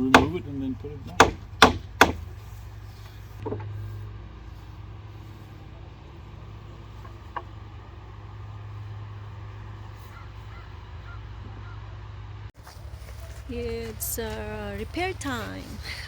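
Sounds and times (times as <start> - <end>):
knocks on wooden fence: 0.0 - 0.4, 1.2 - 2.2.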